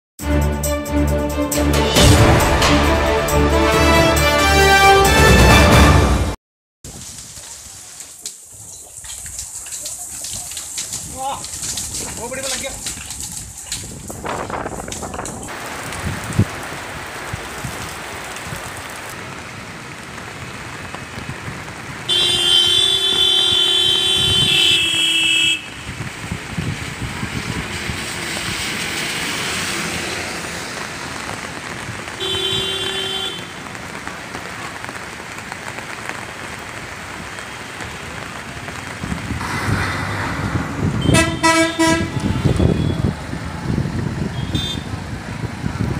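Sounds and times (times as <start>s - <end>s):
steady rain: 6.9s - 45.9s
traffic hiss on wet road: 6.9s - 45.9s
vehicle horn honking: 22.1s - 25.8s, 32.2s - 33.6s, 41.0s - 43.1s, 44.3s - 44.9s.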